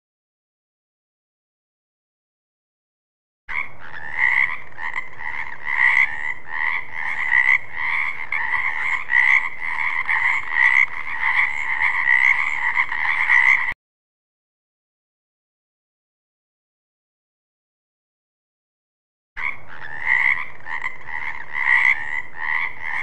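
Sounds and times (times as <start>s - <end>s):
frogs croaking: 3.5s - 13.8s, 19.4s - 23.0s.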